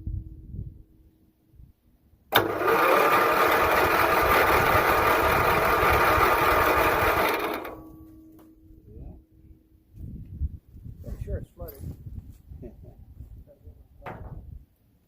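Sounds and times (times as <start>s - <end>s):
engine starter cranking: 2.3s - 8.0s.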